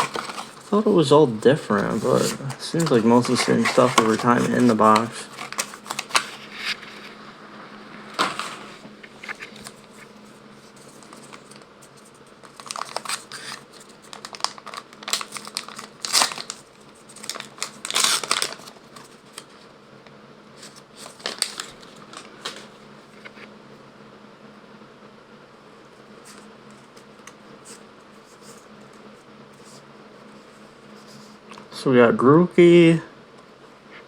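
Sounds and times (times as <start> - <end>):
card pack wrappers crinkling: 0.0 - 7.1, 8.1 - 19.6, 20.6 - 22.8.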